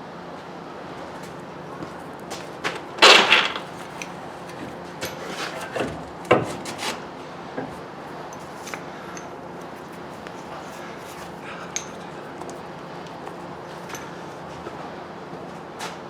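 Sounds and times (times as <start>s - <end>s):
tools scraping: 3.0s - 4.2s, 8.3s - 14.1s.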